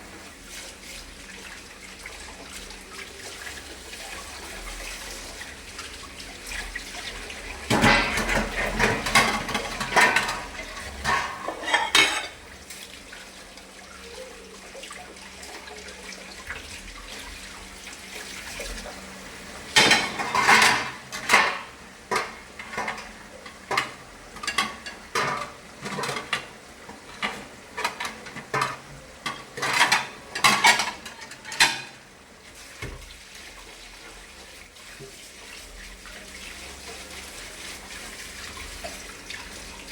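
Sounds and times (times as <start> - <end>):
water running from a tap: 0.0 - 39.9
dishes and cutlery clattering: 7.7 - 12.4, 19.7 - 32.0.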